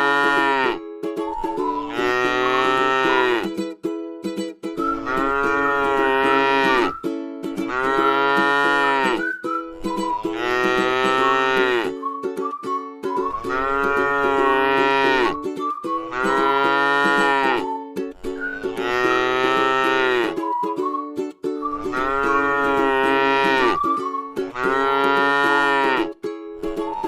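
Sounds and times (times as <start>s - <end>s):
cow mooing: 0.0s - 0.8s, 1.9s - 3.5s, 5.0s - 7.0s, 7.7s - 9.3s, 10.3s - 11.9s, 13.4s - 15.4s, 16.0s - 17.7s, 18.8s - 20.4s, 21.9s - 23.8s, 24.5s - 26.1s
plucked-string background music: 0.0s - 27.0s.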